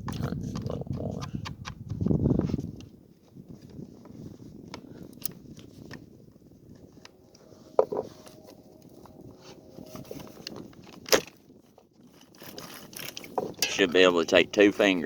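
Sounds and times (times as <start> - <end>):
clicks and scrapes of tools: 12.0 - 13.8.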